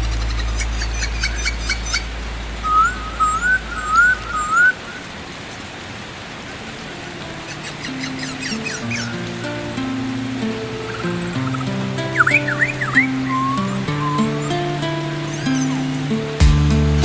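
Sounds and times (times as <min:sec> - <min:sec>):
low drone: 0:00.0 - 0:04.4
bird whistled call: 0:00.0 - 0:05.0, 0:07.4 - 0:09.2, 0:10.9 - 0:16.0
steady watery hiss: 0:00.0 - 0:17.0.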